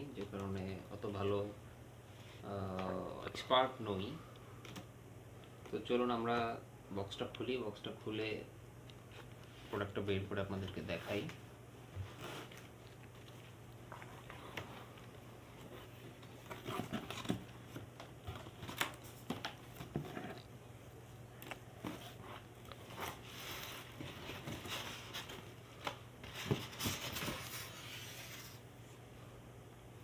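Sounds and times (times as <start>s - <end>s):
cardboard scratching and rustling: 15.6s - 20.5s.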